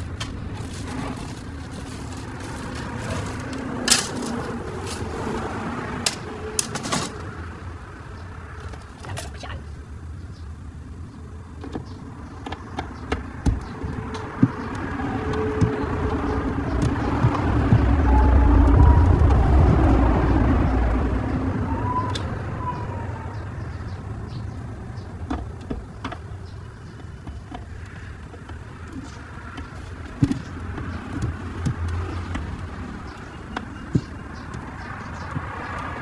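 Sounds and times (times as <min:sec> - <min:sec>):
motor vehicle passing: 0:00.0 - 0:08.8, 0:12.1 - 0:26.7.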